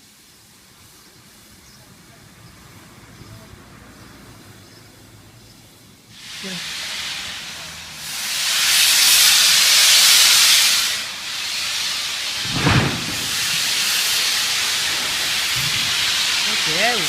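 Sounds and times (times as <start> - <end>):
steam locomotive hissing: 6.0 - 17.0
low thump: 12.4 - 14.1.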